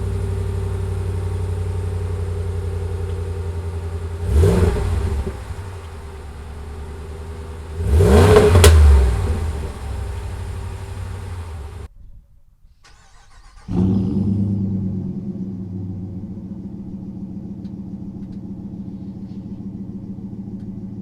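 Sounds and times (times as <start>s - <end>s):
car engine exhaust idling: 0.0s - 11.9s, 14.2s - 21.0s
engine throttle blip: 0.0s - 11.9s.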